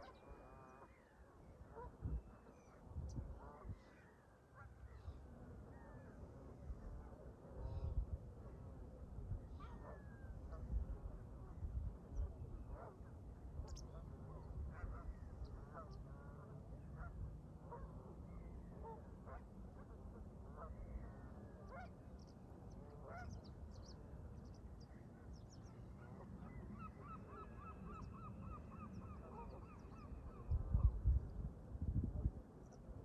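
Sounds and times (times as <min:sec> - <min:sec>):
wind rumble on microphone: 0:01.5 - 0:04.0, 0:06.5 - 0:21.8, 0:28.0 - 0:33.0.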